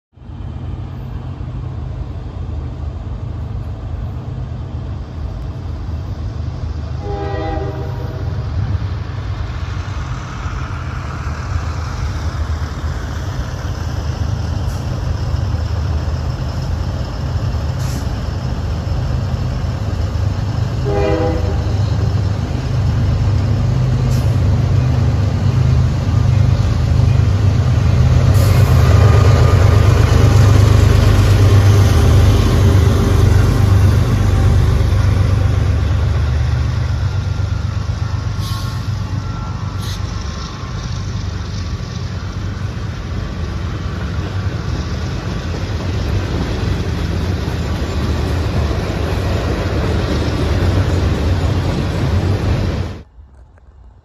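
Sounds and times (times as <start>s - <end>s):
diesel locomotive engines rumbling: 0.1s - 54.0s
train horn blasts: 7.0s - 8.4s, 20.8s - 22.1s.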